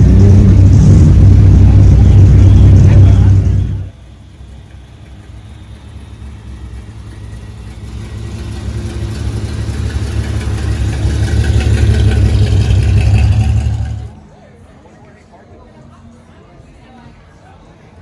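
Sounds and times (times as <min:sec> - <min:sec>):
car engine approaching: 0:00.0 - 0:14.2.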